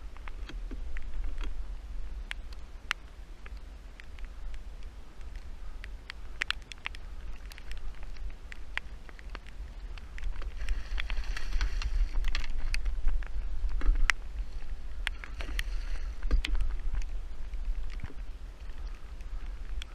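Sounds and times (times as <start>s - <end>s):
raindrops pattering on boat: 0.0s - 19.9s
steady low rumble: 0.0s - 19.9s.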